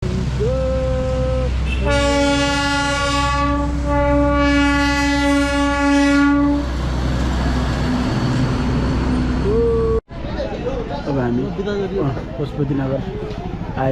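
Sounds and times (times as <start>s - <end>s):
locomotive rumble: 0.0s - 13.9s
train horn blast: 1.6s - 6.8s.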